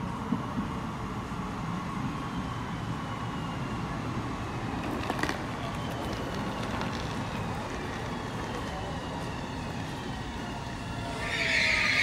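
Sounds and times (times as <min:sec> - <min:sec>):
electric train rumble: 0:00.0 - 0:12.0.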